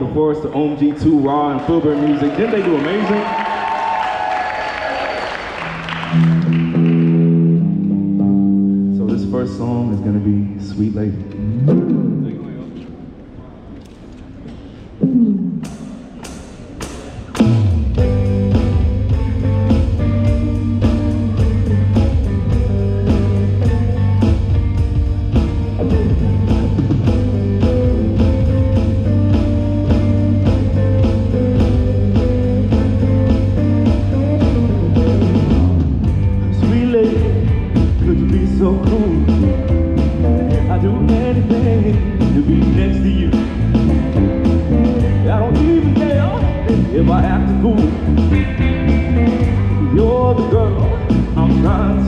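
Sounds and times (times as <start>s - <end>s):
rock band playing: 5.5s - 9.3s, 15.0s - 52.0s.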